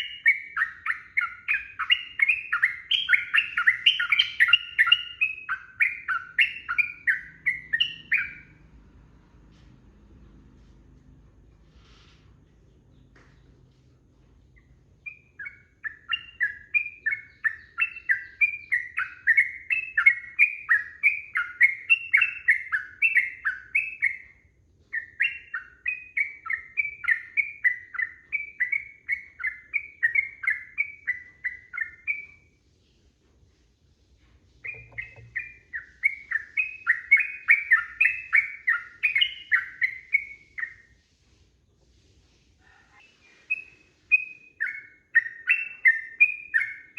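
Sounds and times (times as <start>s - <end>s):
bulbul singing chattering notes: 34.6s - 40.3s.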